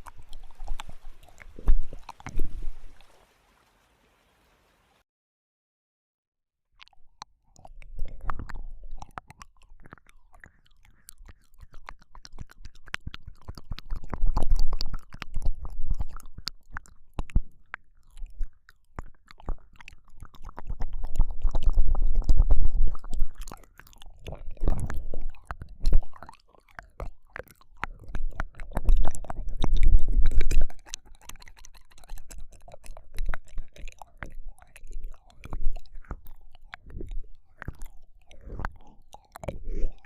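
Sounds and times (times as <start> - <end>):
muffled mouthing against ear: 0.0 - 3.2, 19.1 - 26.4, 27.8 - 40.0
wet tongue clicks and smacks: 0.0 - 3.2, 6.8 - 40.0.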